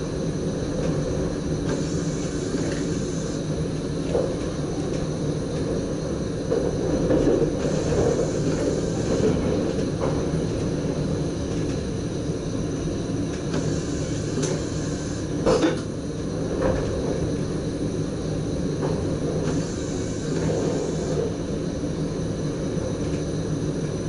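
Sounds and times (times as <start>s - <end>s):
train cab rumble: 0.0s - 24.0s.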